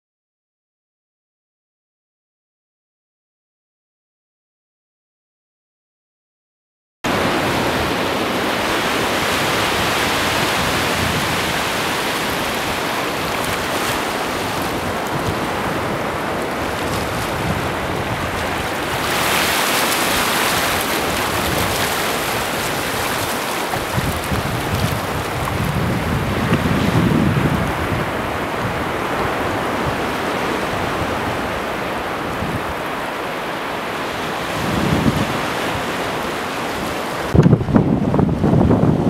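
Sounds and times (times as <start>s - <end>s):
sea waves washing onto shore: 7.1s - 37.4s
wind on microphone: 7.1s - 39.0s.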